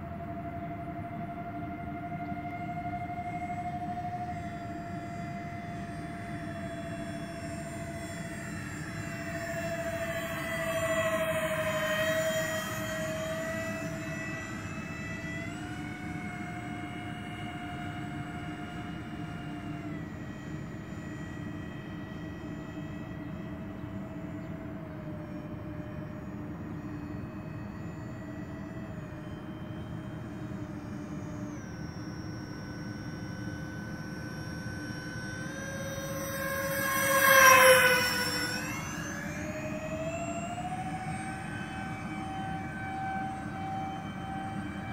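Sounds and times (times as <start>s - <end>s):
model airplane fans whining: 0.0s - 44.9s.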